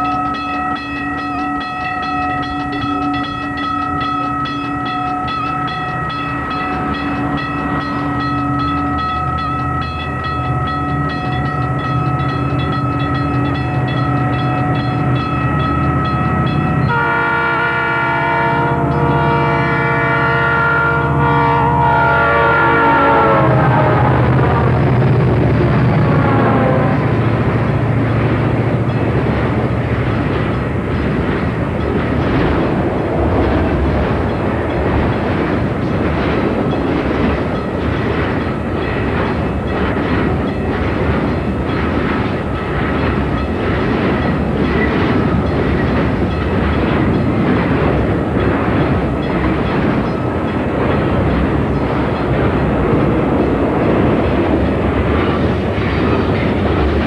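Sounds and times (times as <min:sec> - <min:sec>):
freight cars rolling: 0:23.8 - 0:57.0
wheels clicking over rail joints: 0:27.0 - 0:57.0.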